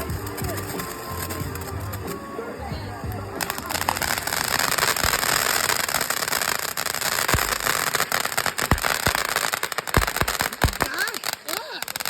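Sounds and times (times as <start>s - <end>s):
fireworks crackling: 0.0s - 12.0s
loud firework bangs: 3.3s - 12.0s.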